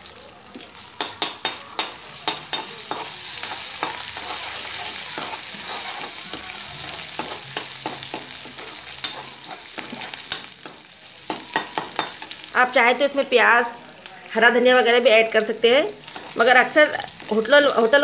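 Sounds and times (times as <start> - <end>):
ginger sizzling in hot oil: 0.0 - 18.0
metal spatula scraping a pan: 0.8 - 12.4.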